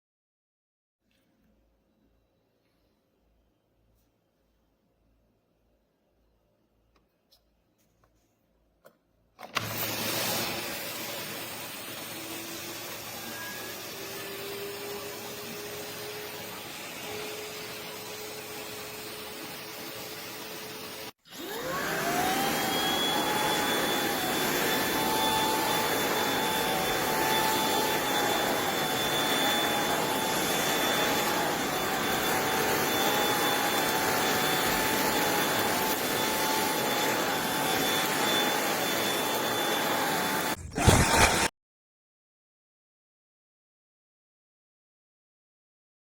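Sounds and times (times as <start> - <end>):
stick vacuum motor whining: 9.4 - 19.2, 21.3 - 41.5.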